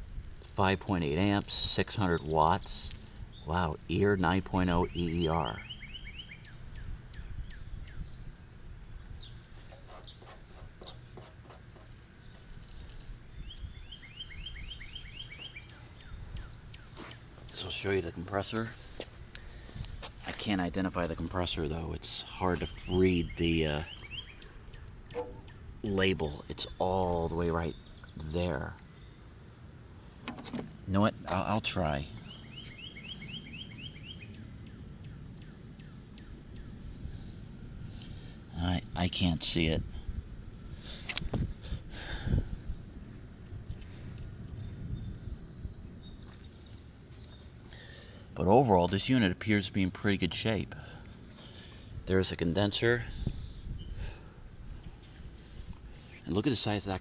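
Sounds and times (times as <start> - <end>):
birds chirping: 0.6 - 57.0
bird trill: 4.8 - 8.1, 9.2 - 17.8, 22.8 - 25.7.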